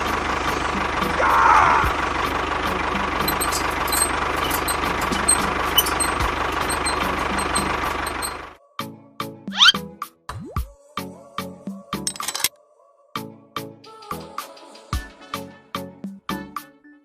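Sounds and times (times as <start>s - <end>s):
engine idling: 0.0s - 8.6s.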